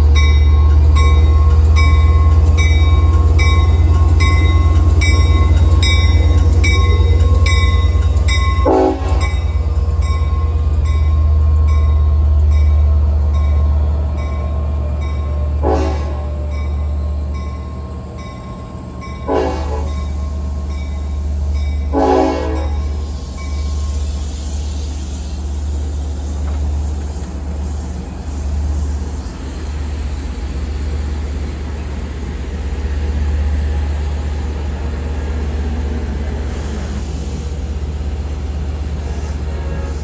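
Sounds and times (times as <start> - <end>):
train rumbling: 0.0 - 40.0
train horn blasts: 8.6 - 9.4, 15.4 - 16.5, 19.2 - 20.2, 21.9 - 23.0, 39.1 - 40.0.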